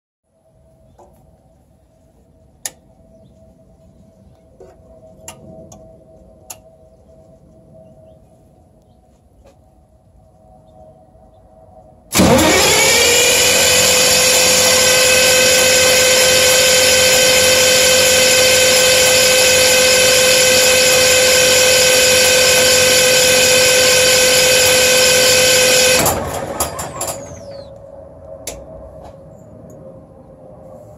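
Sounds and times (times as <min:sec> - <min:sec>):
diesel engine cranking on starter: 0:12.1 - 0:27.7.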